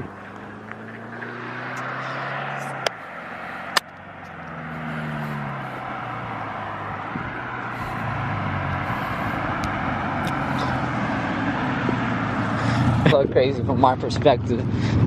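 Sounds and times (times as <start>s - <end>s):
car engine running: 0.0s - 15.0s
exhaust cracks: 0.0s - 15.0s.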